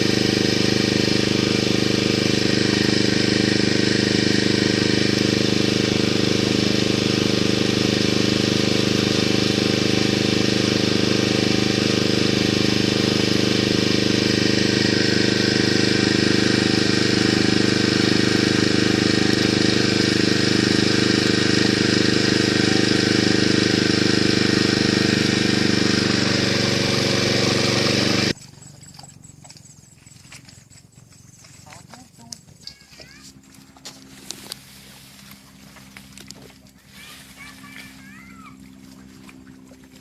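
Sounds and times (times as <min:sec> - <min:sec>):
small engine running: 0:00.0 - 0:40.0.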